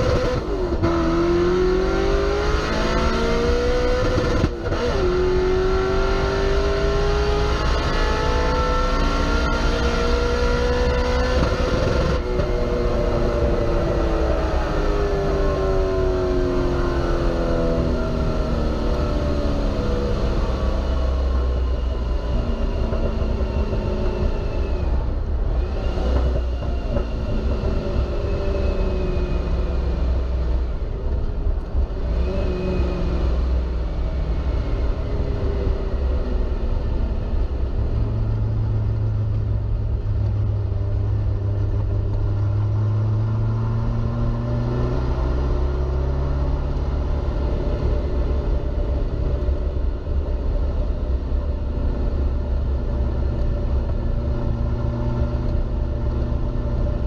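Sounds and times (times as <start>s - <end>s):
road and wind rumble: 0.0s - 57.0s.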